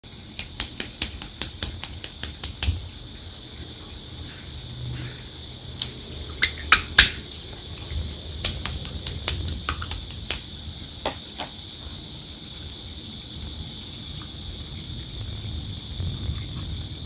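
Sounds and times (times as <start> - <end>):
slime popping: 5.8 - 10.5.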